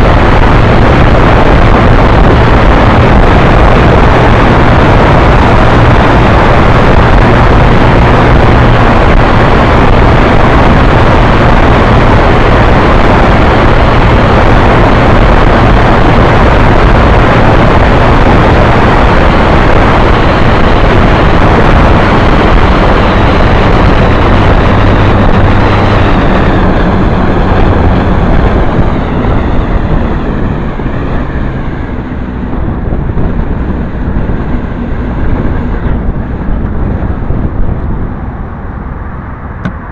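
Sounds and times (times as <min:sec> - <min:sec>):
motorbike engine drone: 0:00.0 - 0:39.9
wind noise on microphone: 0:00.0 - 0:39.9.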